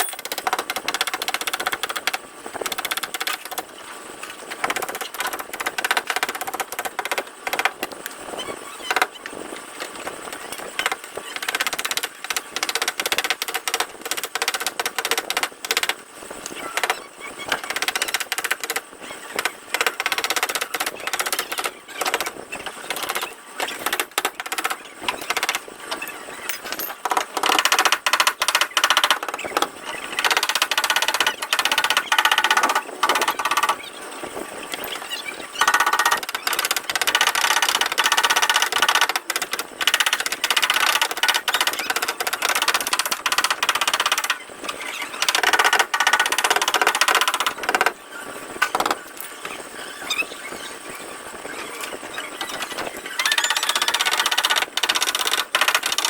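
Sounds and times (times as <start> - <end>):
rapid tapping on metal panel: 10.3 - 16.0, 27.0 - 33.8, 35.6 - 44.4.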